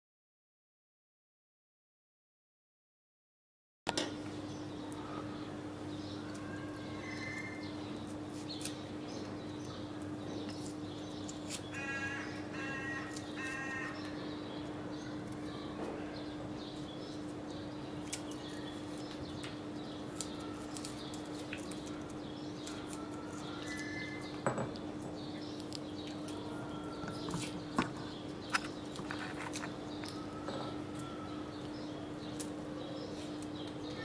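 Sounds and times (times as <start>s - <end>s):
bird cawing: 11.7s - 14.5s, 21.7s - 24.3s.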